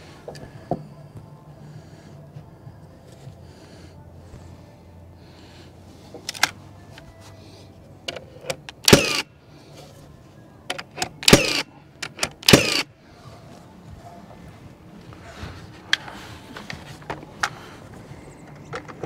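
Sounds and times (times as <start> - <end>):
cordless drill bursts: 8.9 - 9.2, 11.3 - 11.6, 12.4 - 12.9.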